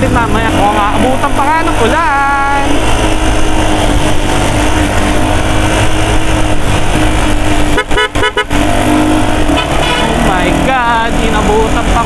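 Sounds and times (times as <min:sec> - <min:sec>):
motorcycle engine running: 0:00.0 - 0:12.0
vehicle horn beeps: 0:07.7 - 0:08.6, 0:09.5 - 0:10.2.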